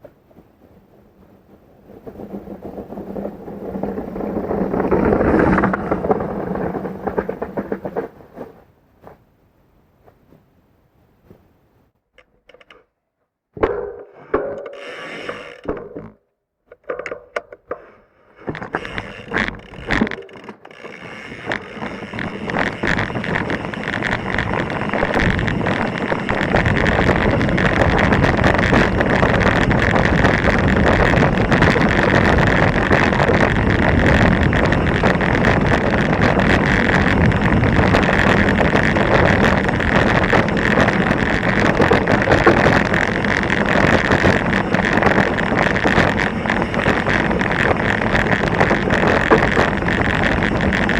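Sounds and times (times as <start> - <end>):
wind buffeting microphone: 0.0 - 9.2, 20.8 - 50.9
bike rattling over rocks: 1.4 - 9.2, 18.4 - 50.9
sharp clicks and knocks: 2.0 - 9.2, 12.1 - 13.0, 13.6 - 50.9.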